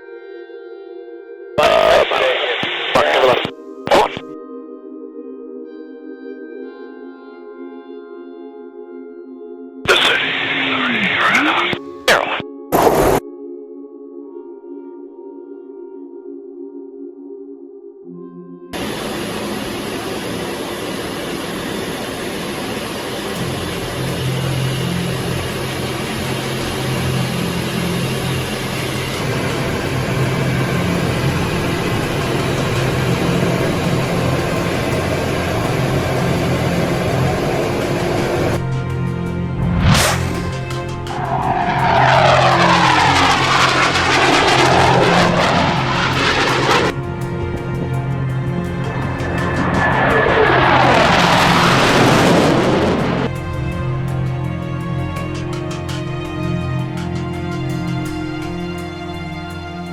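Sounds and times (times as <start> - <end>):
jet engine rushing: 1.6 - 4.2, 9.9 - 13.2, 18.8 - 59.8
low hum: 18.8 - 59.7
background music: 23.3 - 59.9.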